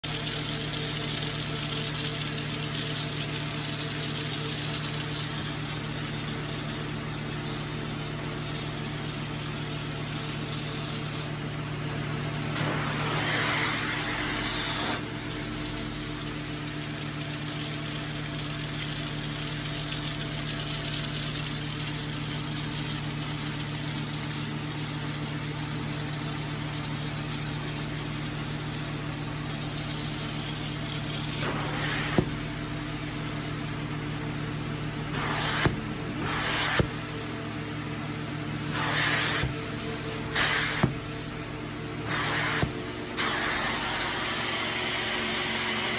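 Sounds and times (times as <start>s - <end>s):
water spraying and sucking rush: 10.4s - 23.0s, 27.8s - 45.9s.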